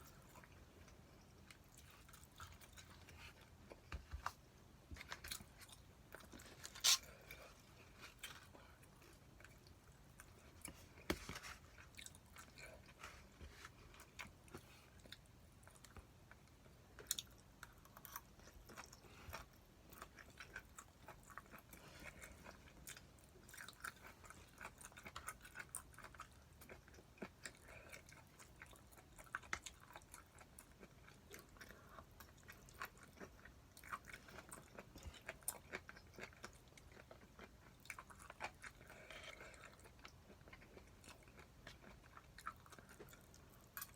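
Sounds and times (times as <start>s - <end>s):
person chewing food: 0.0s - 43.9s.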